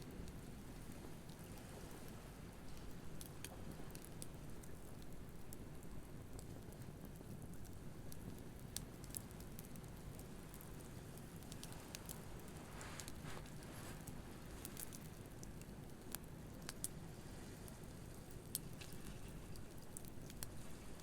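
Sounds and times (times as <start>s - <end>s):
campfire crackling and popping: 0.1s - 21.0s.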